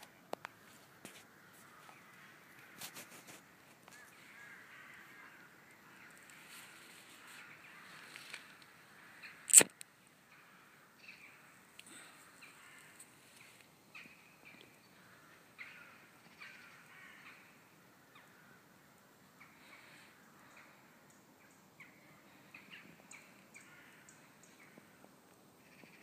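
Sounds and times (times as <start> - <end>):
faint bird calls and chips: 0.4 - 18.6, 19.3 - 26.0.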